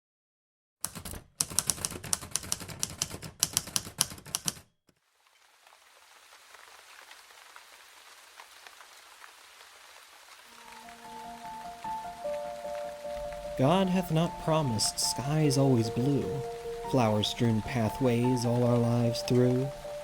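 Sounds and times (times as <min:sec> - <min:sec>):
typewriter keys clacking: 0:00.8 - 0:04.7
rain patter: 0:05.0 - 0:20.0.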